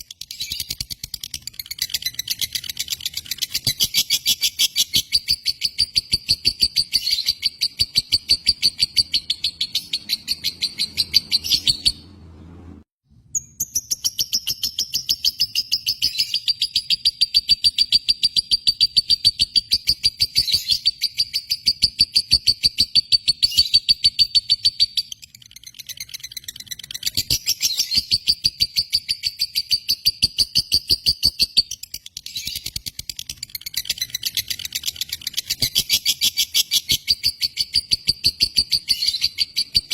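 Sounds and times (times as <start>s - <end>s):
lovebird chattering trill: 0.1s - 12.0s.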